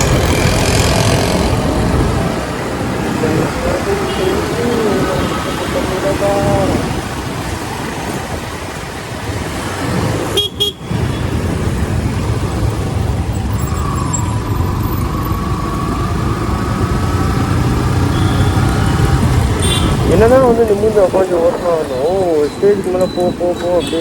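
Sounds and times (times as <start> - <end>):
motorcycle engine: 0.0 - 7.6, 10.2 - 20.6
wind buffeting a microphone: 0.0 - 10.4
road traffic noise: 0.0 - 24.0.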